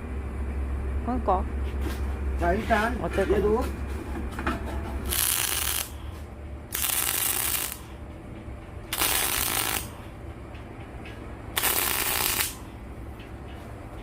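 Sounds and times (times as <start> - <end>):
welding hiss bursts: 5.0 - 6.0, 6.7 - 7.9, 8.9 - 10.0, 11.6 - 12.7
welder low hum: 5.0 - 10.4, 11.4 - 13.1.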